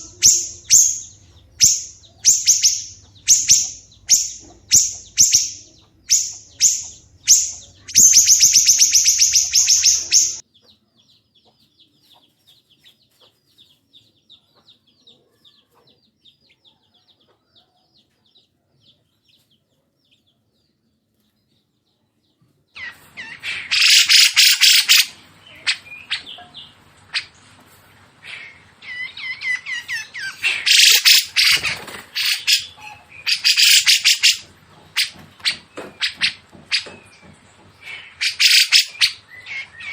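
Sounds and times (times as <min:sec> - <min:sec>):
bird trilling: 0:00.0 - 0:10.4, 0:22.8 - 0:27.5, 0:28.2 - 0:39.9
faint bird chatter: 0:00.0 - 0:39.9
harsh bird song: 0:00.0 - 0:39.9
songbirds calling: 0:00.0 - 0:39.9.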